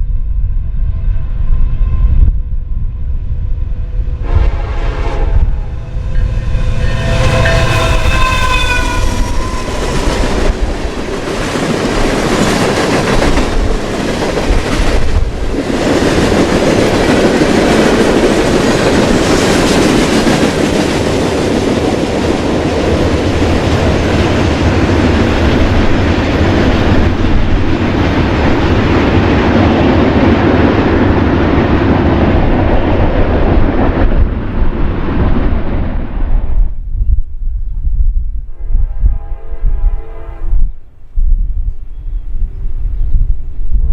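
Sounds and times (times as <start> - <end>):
train passing: 0.2 - 36.6
train horn: 4.2 - 11.6, 38.5 - 40.8.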